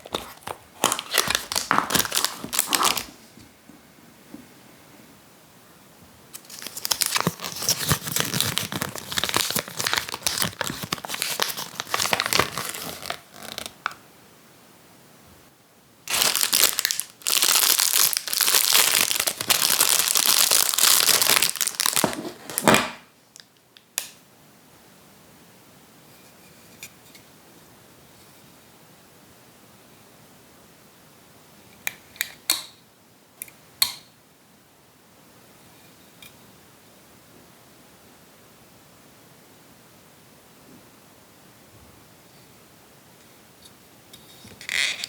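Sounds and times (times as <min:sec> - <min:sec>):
plastic packaging crinkling and tearing: 0:00.0 - 0:03.2, 0:06.4 - 0:14.0, 0:16.1 - 0:23.5
short plastic rustles: 0:00.0 - 0:03.2, 0:16.1 - 0:23.0.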